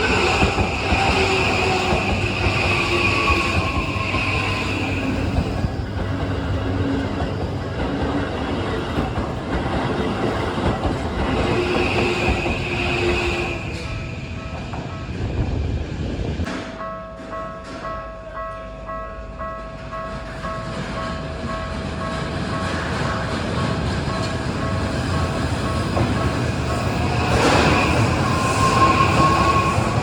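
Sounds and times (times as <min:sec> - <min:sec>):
wheel squeal: 0:00.0 - 0:07.8, 0:25.7 - 0:30.0
train wheels clattering: 0:00.0 - 0:15.5, 0:19.9 - 0:30.0
crossing warning bell ringing: 0:16.7 - 0:23.3, 0:24.0 - 0:30.0.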